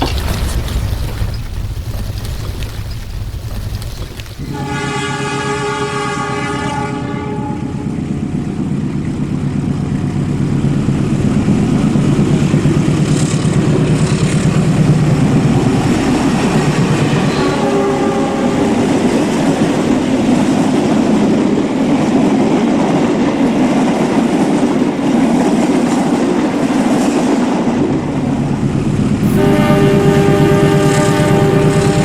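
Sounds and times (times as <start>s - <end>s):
train rumble with wheels clicking: 0.0s - 32.0s
train horn: 4.5s - 8.4s, 16.4s - 19.9s, 29.2s - 32.0s.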